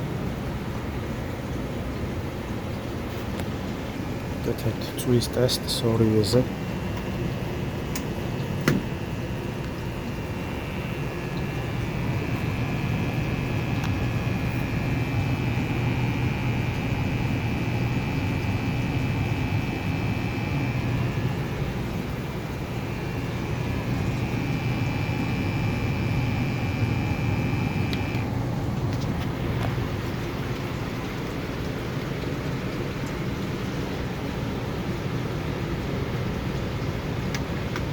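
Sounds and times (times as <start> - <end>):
furnace hum and air rush: 0.0 - 37.9
thin high-pitched whine: 4.4 - 28.3.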